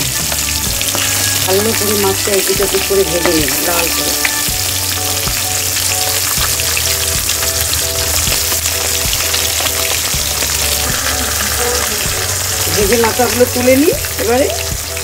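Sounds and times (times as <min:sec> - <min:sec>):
fish sizzling in hot oil: 0:00.0 - 0:15.0
spatula knocking and scraping wok: 0:00.1 - 0:04.1.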